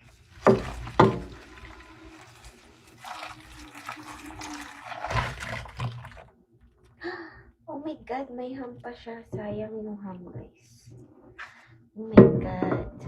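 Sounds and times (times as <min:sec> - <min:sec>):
dishes scraping: 0:00.0 - 0:06.2
running water: 0:00.0 - 0:06.3.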